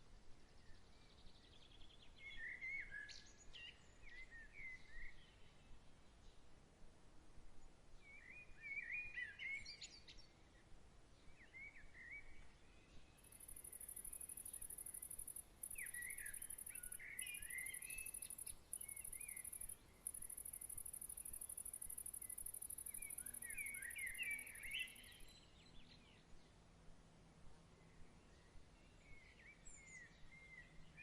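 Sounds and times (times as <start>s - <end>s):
songbirds warbling: 13.3s - 25.3s
cricket trilling: 18.0s - 23.4s.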